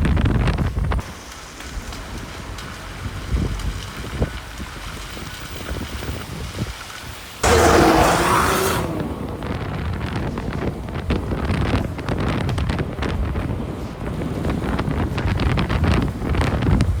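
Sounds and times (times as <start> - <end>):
car rumble: 0.0 - 17.0
wind buffeting microphone: 0.0 - 17.0.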